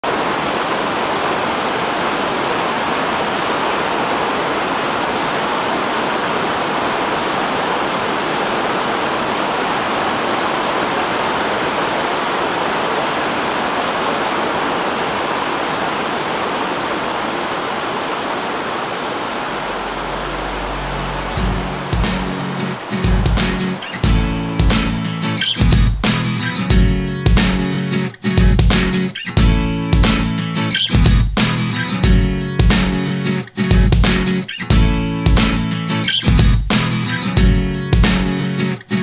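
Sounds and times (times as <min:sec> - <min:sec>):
stream water rushing: 0:00.0 - 0:26.8.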